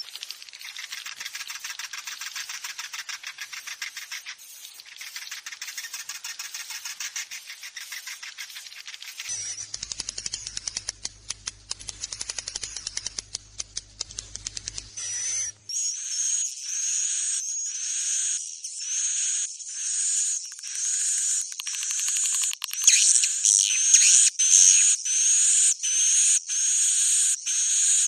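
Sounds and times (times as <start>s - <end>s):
fast train of sharp clicks: 8.8s - 15.0s
buzzy rising chirps: 9.3s - 11.0s, 14.2s - 16.4s.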